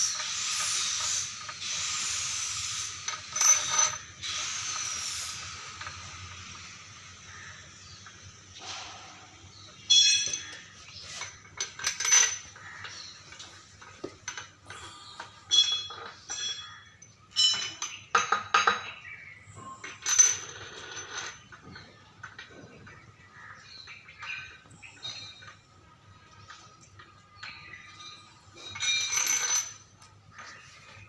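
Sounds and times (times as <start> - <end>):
metal tools clanking: 2.7 - 6.6, 8.1 - 22.8, 27.3 - 30.6.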